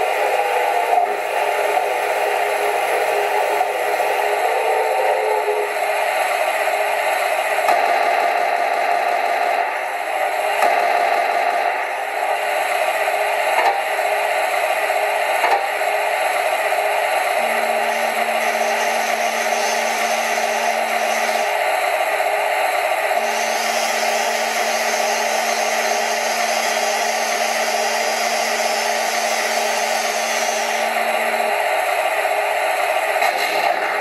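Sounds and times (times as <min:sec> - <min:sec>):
electric motors whirring: 0:00.0 - 0:07.5, 0:17.1 - 0:21.9
low hum: 0:00.0 - 0:34.0.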